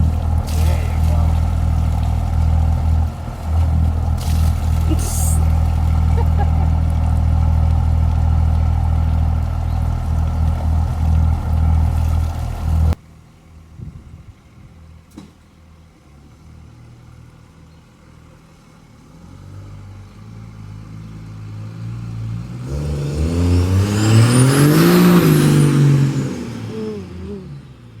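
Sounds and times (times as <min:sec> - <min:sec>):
truck passing under full throttle: 0:00.0 - 0:13.0, 0:18.9 - 0:28.0
diesel engine running: 0:00.0 - 0:18.3, 0:23.2 - 0:28.0.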